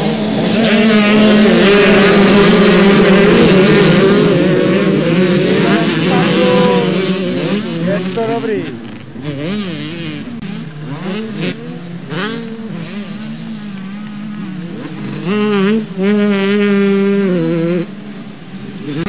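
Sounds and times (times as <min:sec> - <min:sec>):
loud motorcycle high note: 0:00.0 - 0:13.3
motorcycle engines revving: 0:00.0 - 0:19.0.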